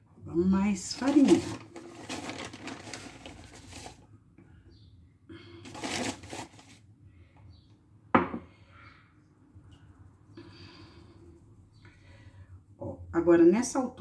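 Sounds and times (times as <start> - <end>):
flour pouring from a bag: 0.8 - 4.0, 5.7 - 6.8.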